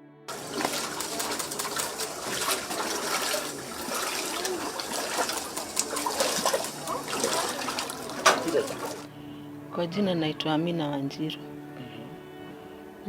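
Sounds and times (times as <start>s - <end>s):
floodwater splashing and trickling: 0.3s - 9.1s.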